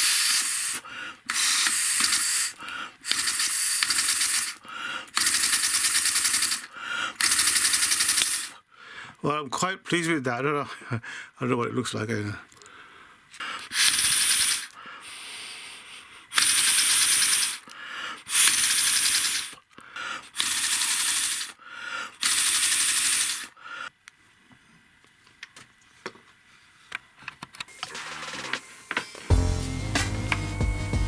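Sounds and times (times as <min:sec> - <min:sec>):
compressed air hissing: 0:00.0 - 0:08.6, 0:13.4 - 0:23.6
fast ticking of model engine: 0:00.0 - 0:08.6, 0:13.6 - 0:14.8, 0:16.3 - 0:19.6, 0:20.3 - 0:21.6, 0:22.2 - 0:23.5.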